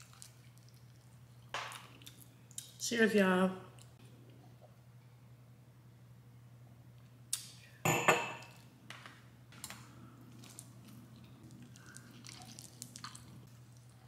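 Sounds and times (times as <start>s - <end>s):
person chewing softly: 0.0s - 2.8s, 9.6s - 14.0s.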